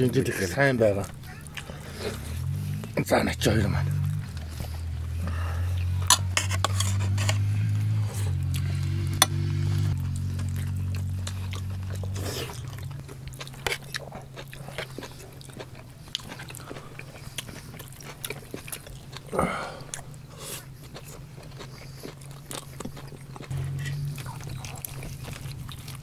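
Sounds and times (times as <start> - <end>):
men chewing food: 0.0 - 26.0
low music drone: 23.5 - 25.7.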